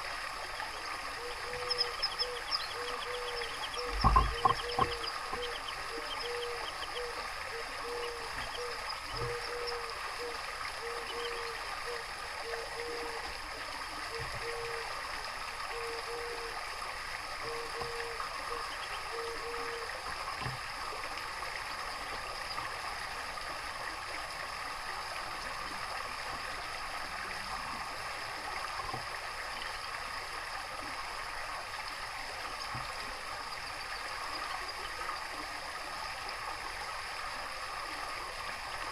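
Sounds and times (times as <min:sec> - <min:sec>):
water trickling and burbling: 0:00.0 - 0:38.9
faint bird chirps: 0:00.6 - 0:13.0.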